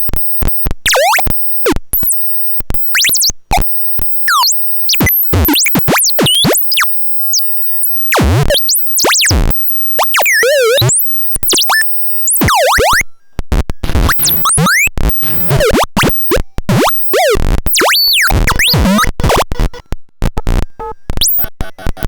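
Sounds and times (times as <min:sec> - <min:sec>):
deep rumble: 0:15.2 - 0:15.6
synthesizer pitch sweeps: 0:15.2 - 0:15.8.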